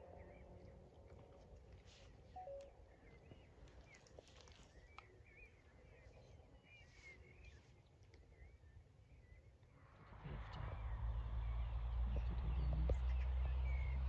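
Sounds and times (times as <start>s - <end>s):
small birds chirping: 0.0s - 14.0s
low steady rumble: 9.9s - 14.0s.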